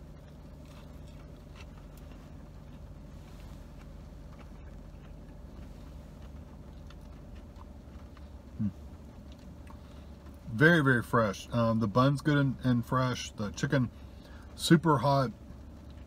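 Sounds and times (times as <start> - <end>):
person chewing crunchy food: 0.0 - 10.6
low hum inside car: 0.0 - 16.0
person humming mm: 8.6 - 8.8.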